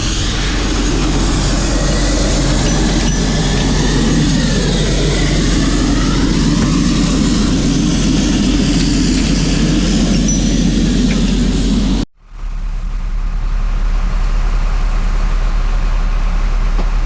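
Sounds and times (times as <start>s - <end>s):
heavy engine running: 0.0s - 17.0s.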